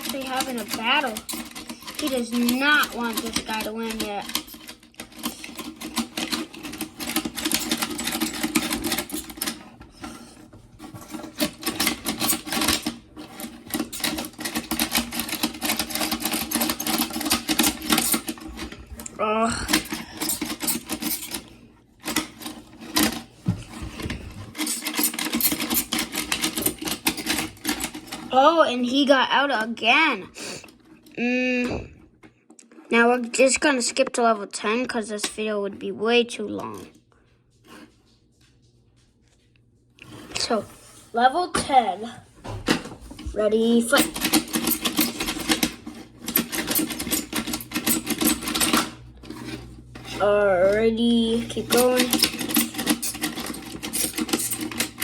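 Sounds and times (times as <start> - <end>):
plastic toy figures clicking: 0.0 - 9.6, 51.6 - 55.0
plastic toys clacking: 0.0 - 10.2, 10.8 - 29.7, 43.4 - 55.0.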